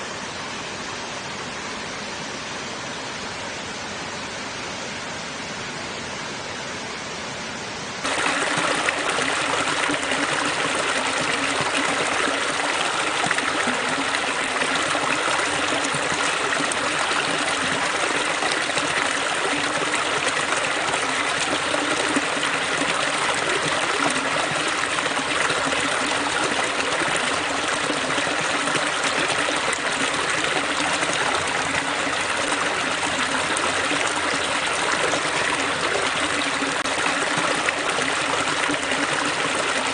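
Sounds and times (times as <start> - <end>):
water rushing over rocks: 8.0 - 39.9.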